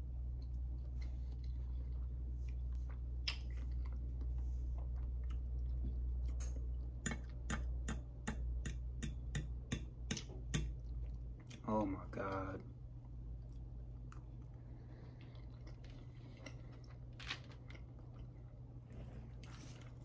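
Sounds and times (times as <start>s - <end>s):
steady low hum: 0.0s - 20.0s
chewing with wet mouth clicks: 0.3s - 7.7s, 10.1s - 11.6s, 13.0s - 18.7s.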